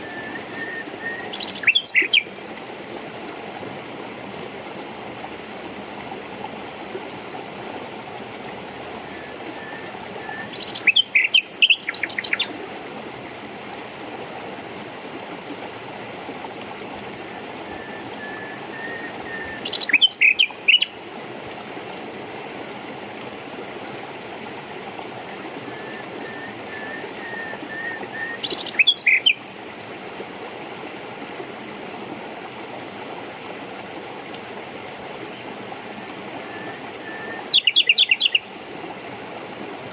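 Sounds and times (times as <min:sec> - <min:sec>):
songbird chirping: 0:00.0 - 0:02.4, 0:10.2 - 0:12.5, 0:18.2 - 0:21.0, 0:25.8 - 0:29.6, 0:36.6 - 0:38.6
running water: 0:00.0 - 0:39.9.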